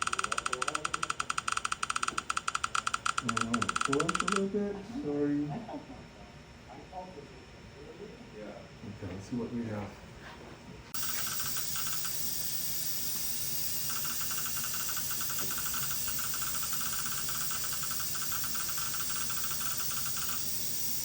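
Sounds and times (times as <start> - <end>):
rapid short high beeps: 11.0 - 21.0
scanner hiss: 11.0 - 21.0.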